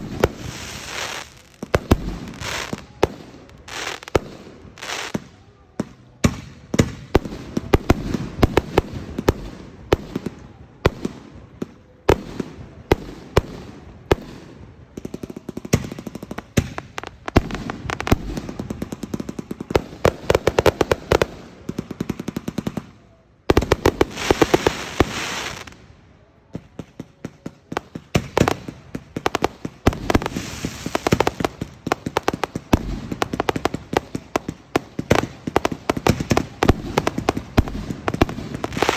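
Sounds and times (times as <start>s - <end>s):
rapid firework crackling: 0.0s - 5.2s, 23.5s - 25.7s, 27.8s - 38.9s.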